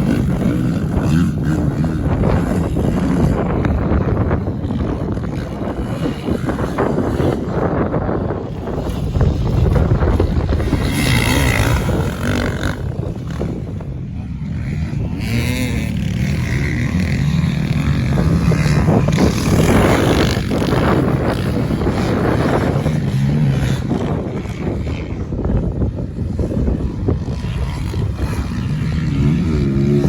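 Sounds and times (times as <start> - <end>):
dirt bike engines revving: 0.0 - 30.0.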